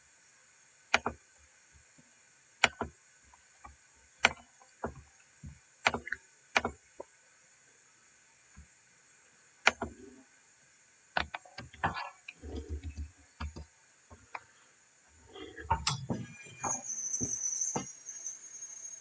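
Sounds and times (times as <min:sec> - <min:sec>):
sharp knocks and clicks: 0:00.9 - 0:01.2, 0:02.6 - 0:03.0, 0:04.2 - 0:06.8, 0:09.7 - 0:10.0, 0:11.2 - 0:14.4.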